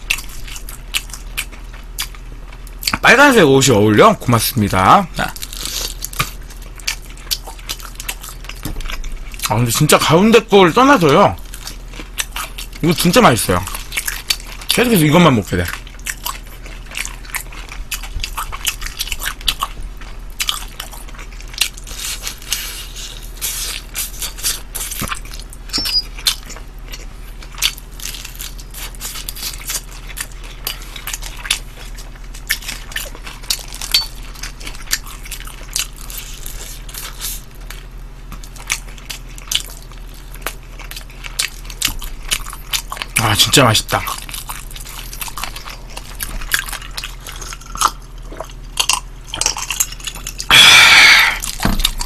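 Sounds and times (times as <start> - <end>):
crisp crunches of chewing: 0.0 - 3.8, 4.7 - 10.2, 10.8 - 52.0
wet mouth sounds: 50.2 - 52.0.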